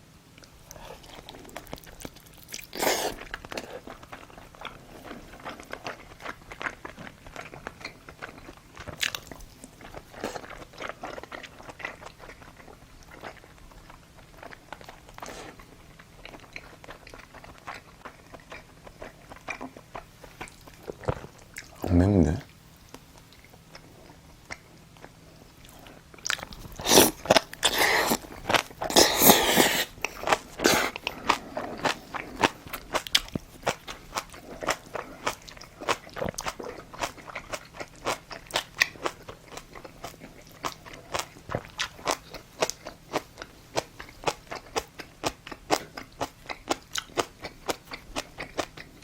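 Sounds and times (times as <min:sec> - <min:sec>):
wet chewing clicks: 0:22.9 - 0:49.0
loud crunching and biting: 0:26.2 - 0:43.2.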